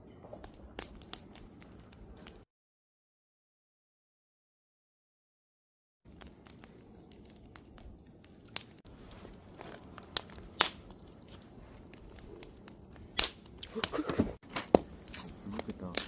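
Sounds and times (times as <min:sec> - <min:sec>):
wood fire crackling and popping: 0:00.2 - 0:02.5, 0:06.1 - 0:16.0
low fire hiss: 0:06.1 - 0:16.0.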